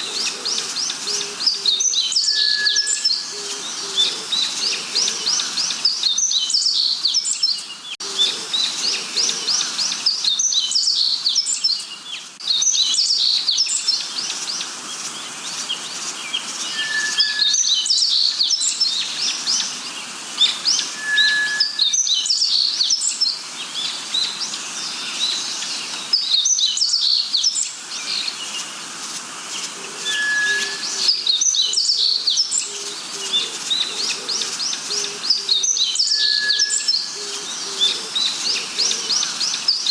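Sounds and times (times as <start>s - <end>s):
background hiss: 0.0s - 39.9s
birds chirping: 0.0s - 39.9s
short whistled note: 16.8s - 17.5s, 21.0s - 21.8s, 30.1s - 30.9s.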